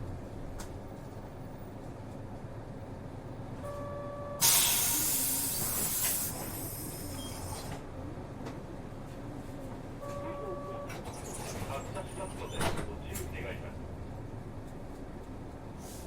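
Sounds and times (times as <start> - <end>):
bus engine and road rumble: 0.0 - 16.0
compressed air hiss: 4.4 - 7.0
short beep: 10.0 - 11.1.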